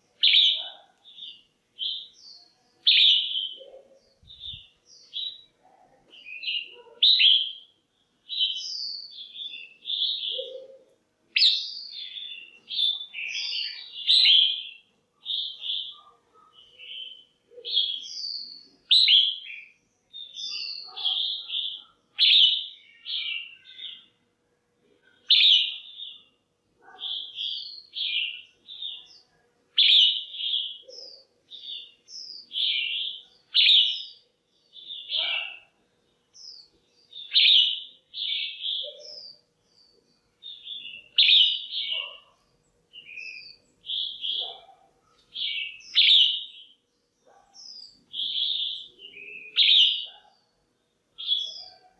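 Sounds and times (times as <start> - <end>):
bird chirping: 0.0 - 24.2, 25.0 - 51.9.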